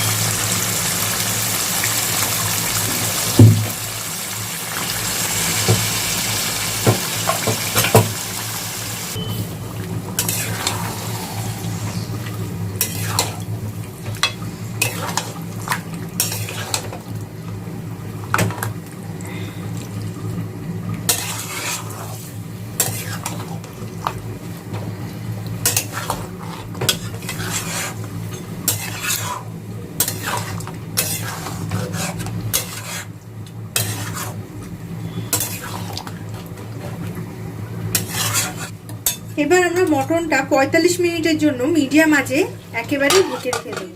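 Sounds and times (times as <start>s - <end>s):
frying sizzle: 0.0s - 43.9s
utensil scraping a pan: 10.2s - 12.1s, 21.1s - 23.6s, 25.6s - 33.1s, 33.8s - 34.4s, 35.0s - 35.9s, 37.9s - 39.2s, 43.0s - 43.9s.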